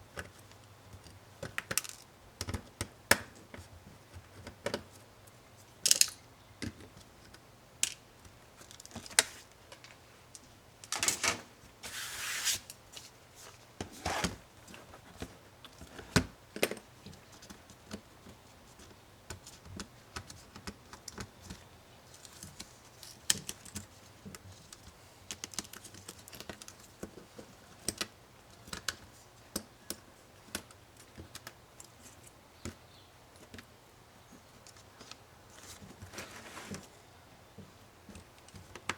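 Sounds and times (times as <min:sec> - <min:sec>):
small clicks and taps: 0:00.1 - 0:10.5.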